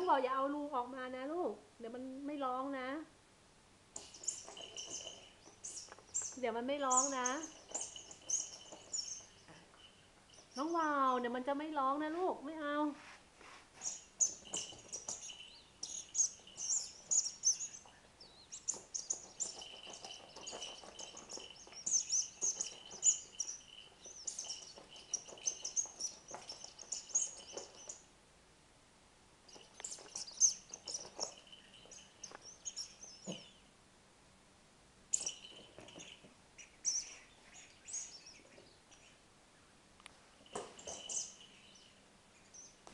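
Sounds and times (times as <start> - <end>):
bird-like chirping: 4.0 - 10.9, 13.8 - 28.1, 29.5 - 33.7, 35.1 - 39.8, 40.5 - 42.8.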